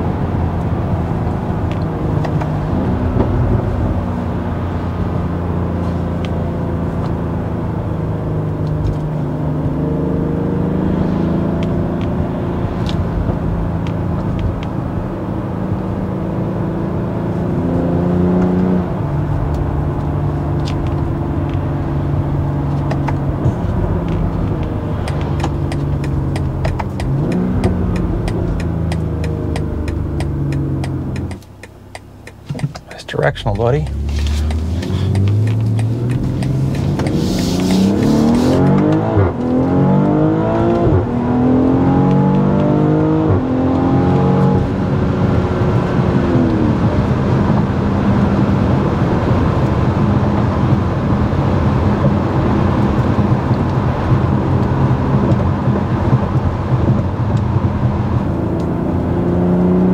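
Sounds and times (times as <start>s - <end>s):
car engine from inside cabin: 0.0s - 59.9s
tyre and road noise: 0.0s - 59.9s
turn signal ticking: 19.3s - 41.1s, 49.2s - 59.9s.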